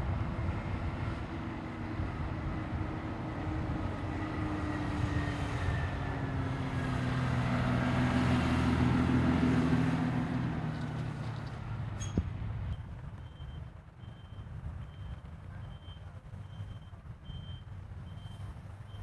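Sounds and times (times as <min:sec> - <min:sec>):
engine passing by: 0:00.0 - 0:12.6.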